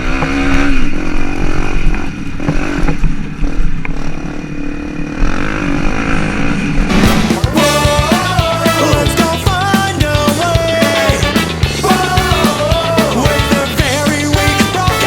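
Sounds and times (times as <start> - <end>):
motocross bike engine running hard: 0.0 - 15.0
music: 6.9 - 15.0.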